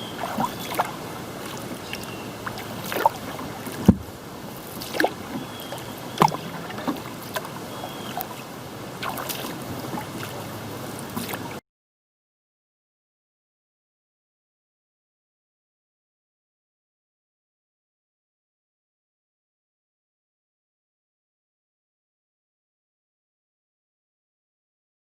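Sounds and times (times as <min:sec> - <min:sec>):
hiss of wind and water: 0:00.0 - 0:11.6
kayak paddle splashing: 0:00.0 - 0:11.6.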